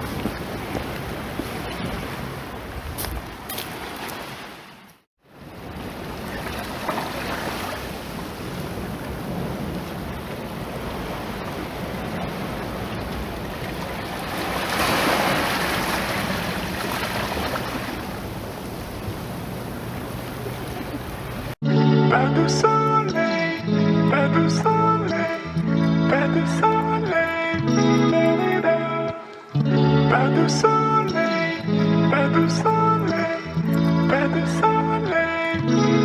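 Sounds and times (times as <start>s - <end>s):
wind on microphone: 0.0s - 4.1s
sea waves washing onto shore: 0.0s - 21.6s.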